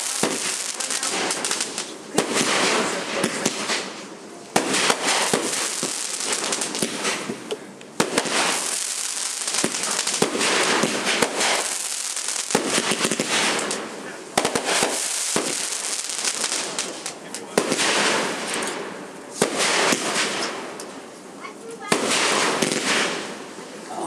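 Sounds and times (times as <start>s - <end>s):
fireworks crackling and popping: 0.0s - 24.0s.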